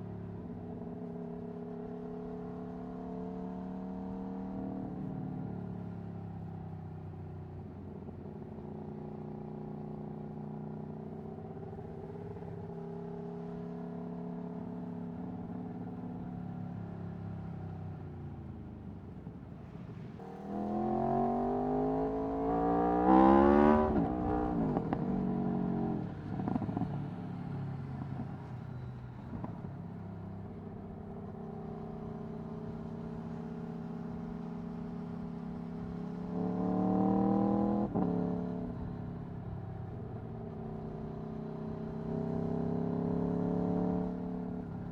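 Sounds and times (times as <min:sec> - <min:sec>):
motorcycle engine revving: 0:20.2 - 0:26.9, 0:36.1 - 0:38.4.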